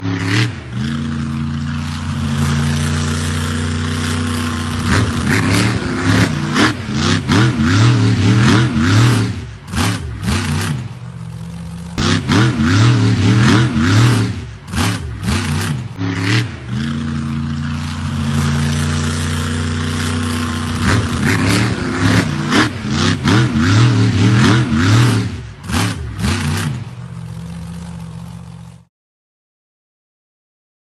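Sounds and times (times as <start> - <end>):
monster truck engine revving: 0.0 - 28.9.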